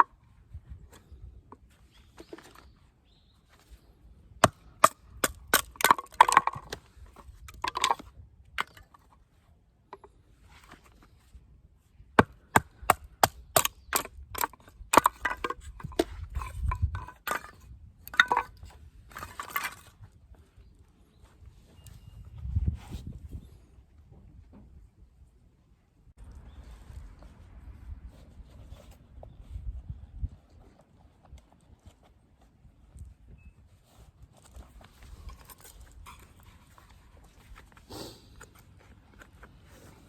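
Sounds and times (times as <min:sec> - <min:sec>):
wood cracking and splitting: 0:04.4 - 0:09.1, 0:12.2 - 0:20.0.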